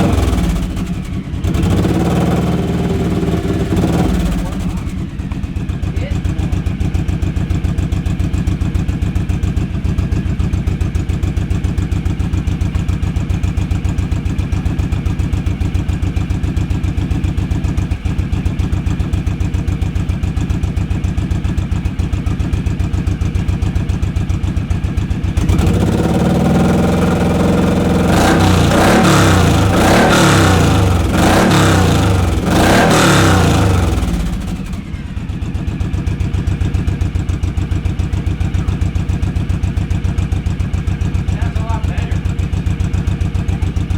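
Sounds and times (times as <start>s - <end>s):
motorcycle engine idling and revving: 0.0s - 43.9s.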